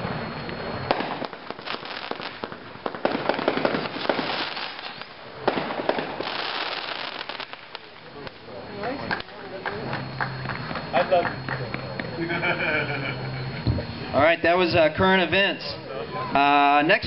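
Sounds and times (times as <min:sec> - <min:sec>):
fireworks bangs and crackle: 0:00.0 - 0:11.8.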